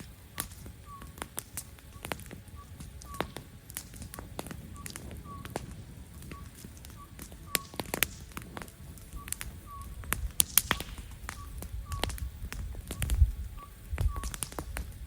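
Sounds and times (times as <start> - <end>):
campfire crackling and popping: 0.0 - 15.0
low rumble of burning: 0.0 - 15.0.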